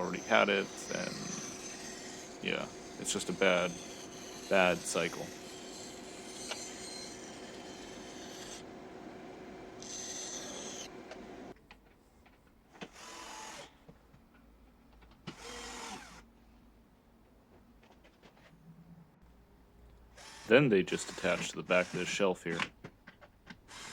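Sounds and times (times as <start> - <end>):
handheld power tool working wood: 0.0 - 11.5, 12.8 - 13.8, 15.2 - 16.2, 20.2 - 22.8, 23.6 - 23.9.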